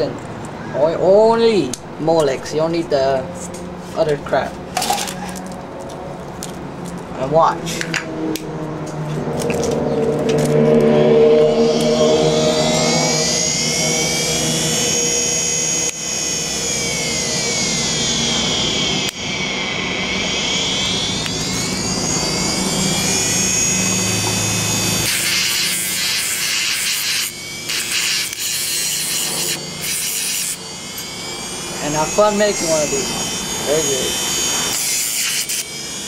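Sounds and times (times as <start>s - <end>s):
hard drive spinning with high whine: 11.2s - 34.8s.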